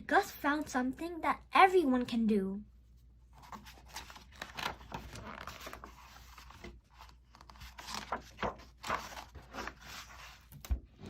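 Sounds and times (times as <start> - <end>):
paper pages rustling: 3.3 - 11.0.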